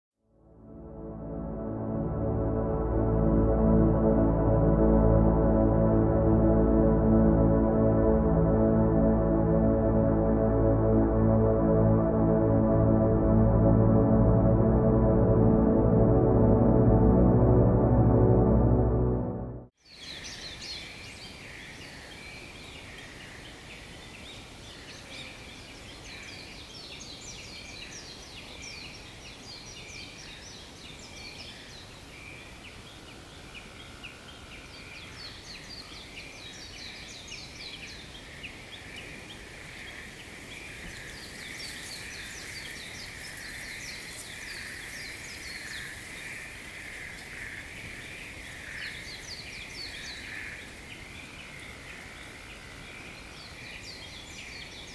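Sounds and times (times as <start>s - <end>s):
steady high drone: 0.5s - 19.7s.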